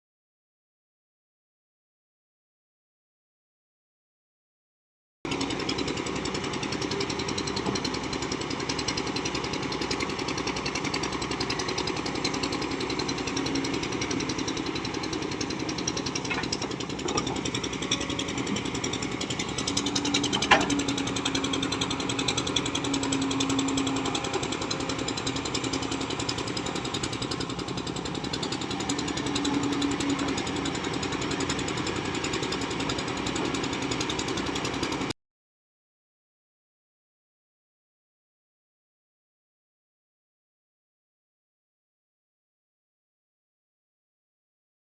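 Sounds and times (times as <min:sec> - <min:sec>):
diesel engine clattering: 0:05.3 - 0:35.1.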